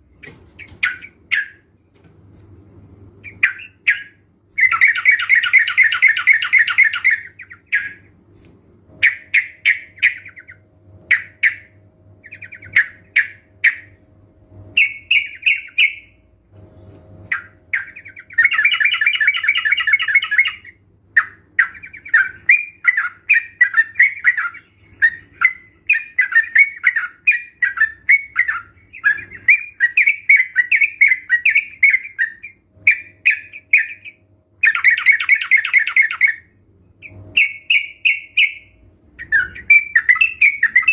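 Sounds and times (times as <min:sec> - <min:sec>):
birds calling: 0:00.0 - 0:01.8, 0:03.2 - 0:08.2, 0:09.0 - 0:14.0, 0:14.7 - 0:40.9
bubbly bird chatter: 0:03.2 - 0:08.1, 0:09.0 - 0:14.0, 0:17.3 - 0:40.9
rattling bird calls: 0:17.3 - 0:40.9.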